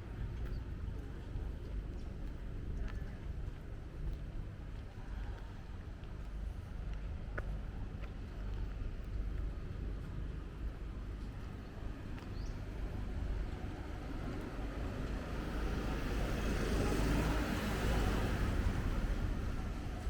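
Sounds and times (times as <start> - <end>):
vehicle passing on wet road: 15.3 - 20.0.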